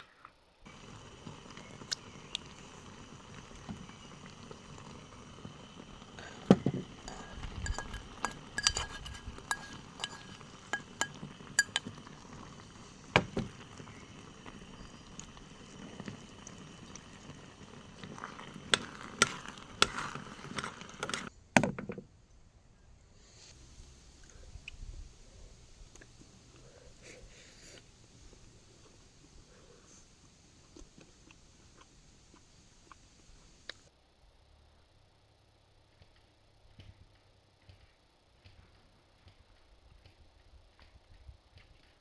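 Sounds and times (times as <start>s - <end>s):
cookware and utensils clinking: 6.5s - 12.6s.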